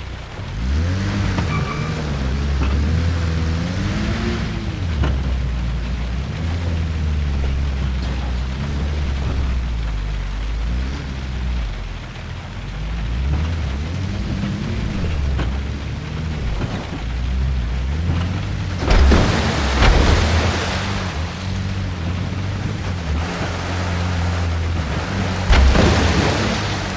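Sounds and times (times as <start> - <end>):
heavy rain and water: 0.0 - 26.9
off-road vehicle engine revving: 0.0 - 26.9
sharp knocks: 14.8 - 23.6, 24.8 - 26.9.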